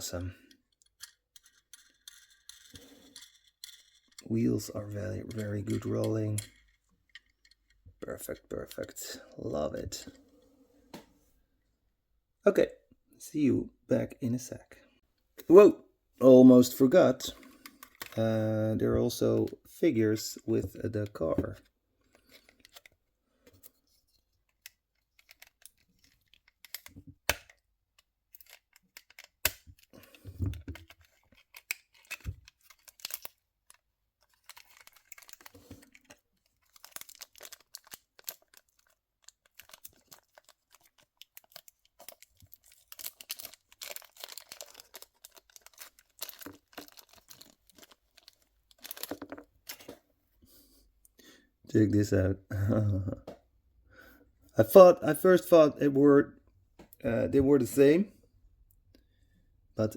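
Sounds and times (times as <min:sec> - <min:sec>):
plastic packaging crinkling: 0:30.6 - 0:49.8.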